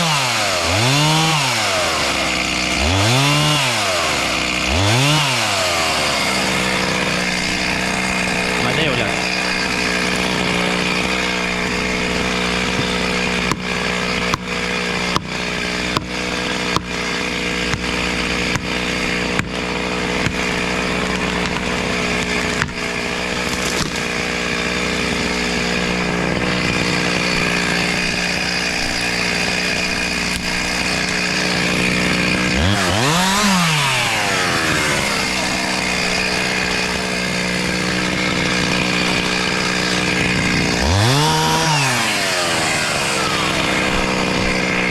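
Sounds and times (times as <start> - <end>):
chainsaw cutting: 0.0 - 44.9.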